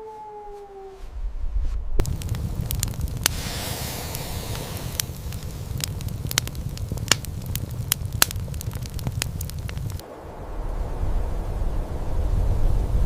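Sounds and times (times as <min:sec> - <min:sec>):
low steady rumble: 0:01.1 - 0:13.0
fire crackling and popping: 0:02.0 - 0:10.0.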